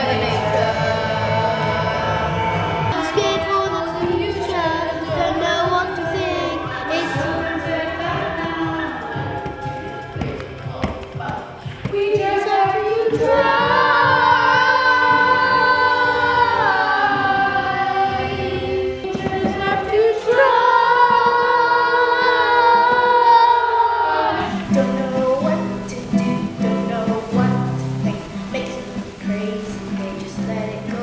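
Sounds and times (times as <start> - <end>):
young voices singing held notes: 0.0 - 31.0
musical accompaniment of repeated notes: 24.4 - 31.0.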